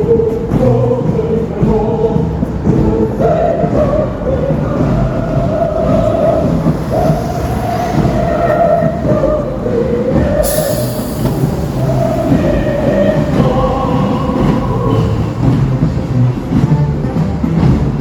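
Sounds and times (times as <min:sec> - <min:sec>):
train rumbling: 0:00.0 - 0:18.0
sudden hiss: 0:06.5 - 0:14.8.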